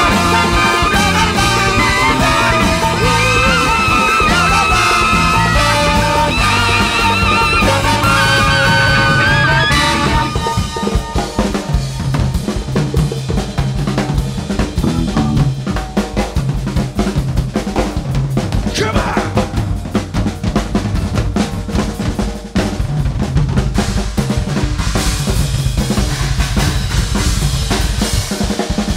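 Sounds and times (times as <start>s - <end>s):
bass playing: 0.0s - 10.4s, 14.8s - 15.8s, 18.7s - 21.4s
big band jazz horns: 0.0s - 12.2s, 14.8s - 15.8s
drum kit: 0.0s - 28.9s.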